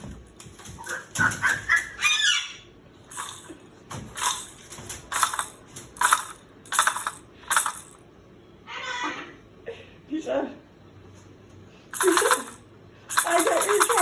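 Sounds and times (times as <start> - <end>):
parrot squawking: 0.9 - 2.7.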